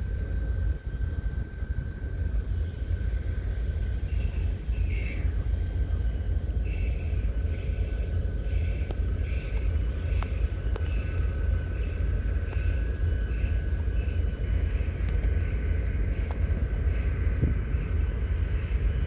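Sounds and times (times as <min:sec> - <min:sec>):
constant whine: 0:00.0 - 0:19.0
diesel locomotive rumbling: 0:00.0 - 0:19.0.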